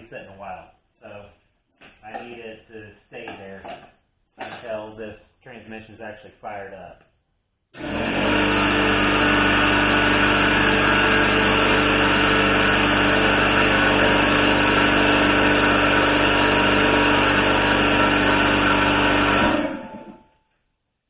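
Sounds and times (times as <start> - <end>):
air compressor running: 7.8 - 20.3.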